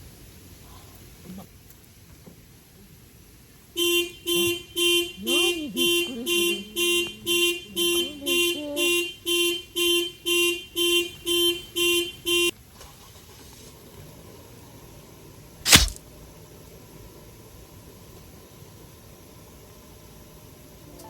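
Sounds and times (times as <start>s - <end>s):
sharp click: 15.7s - 16.0s.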